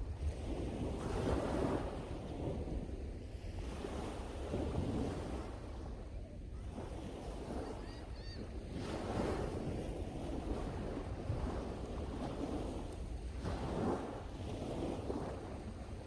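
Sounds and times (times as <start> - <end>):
sea waves breaking on shore: 6.7 - 16.0.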